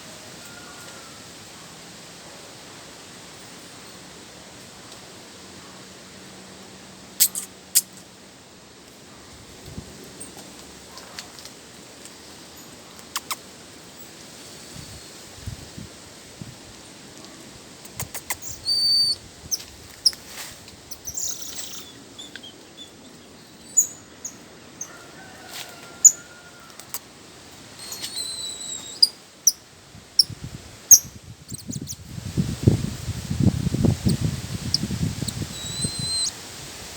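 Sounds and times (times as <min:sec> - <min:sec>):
whistled bird notes: 0:18.3 - 0:19.2, 0:27.8 - 0:29.1, 0:35.2 - 0:36.3
birds chirping: 0:20.9 - 0:24.4, 0:30.9 - 0:32.0, 0:34.0 - 0:36.3.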